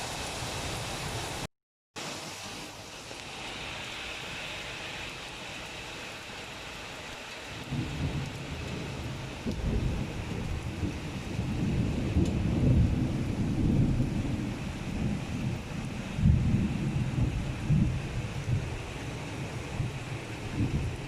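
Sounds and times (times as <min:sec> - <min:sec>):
heavy rain falling: 0:00.0 - 0:21.0
rumble of thunder: 0:07.6 - 0:21.0.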